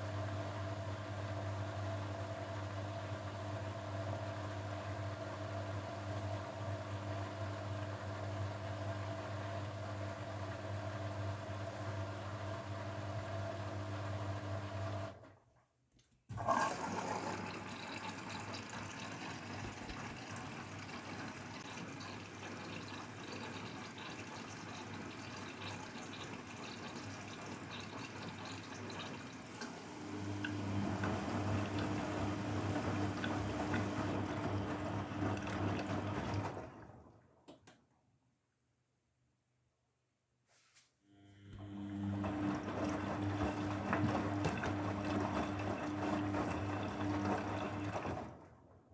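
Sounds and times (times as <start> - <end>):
water rushing through machine: 16.3 - 37.2, 42.1 - 48.5
washing machine pump hum: 16.3 - 37.4, 41.4 - 48.9.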